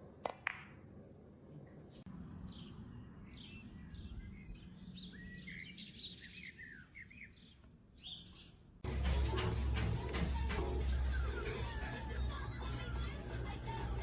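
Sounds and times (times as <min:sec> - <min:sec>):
small birds chirping: 0:01.9 - 0:08.8.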